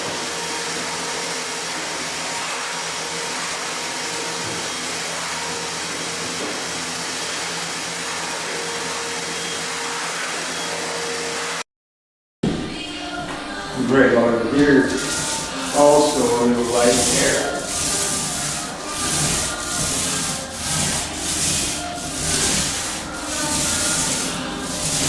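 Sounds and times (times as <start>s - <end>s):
electric blower motor whooshing: 13.6s - 25.0s.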